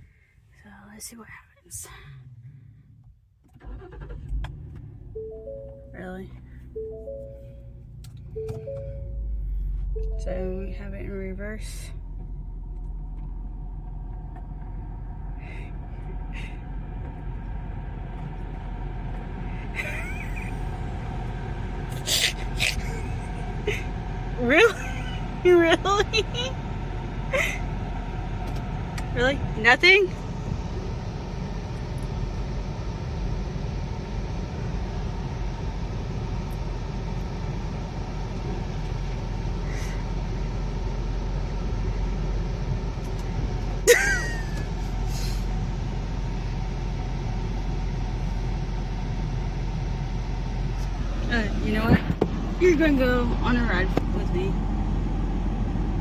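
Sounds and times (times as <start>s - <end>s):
car engine low rumble: 0.0s - 56.0s.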